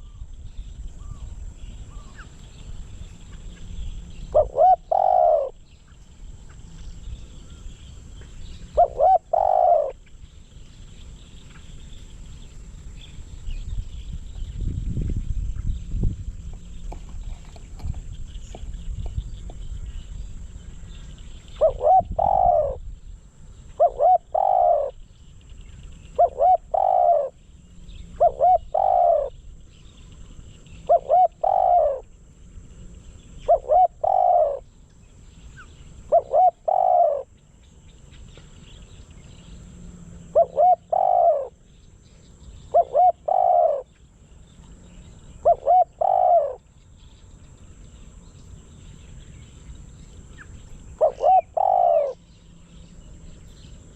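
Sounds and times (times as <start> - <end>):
dove cooing: 3.2 - 5.7, 7.3 - 10.2, 20.8 - 22.9, 23.7 - 25.0, 26.0 - 29.4, 30.2 - 32.1, 33.3 - 34.7, 35.6 - 37.4, 40.0 - 41.6, 42.6 - 43.9, 45.4 - 46.7, 50.3 - 53.9.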